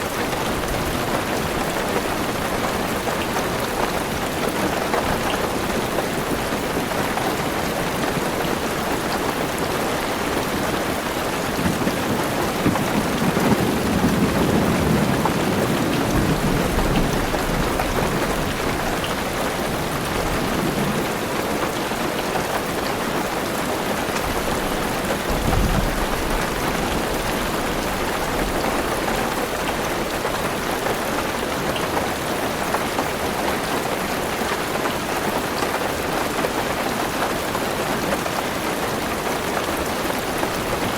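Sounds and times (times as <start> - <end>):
heavy rain on a car roof: 0.0 - 40.9
rolling thunder: 11.4 - 19.2, 24.4 - 28.9.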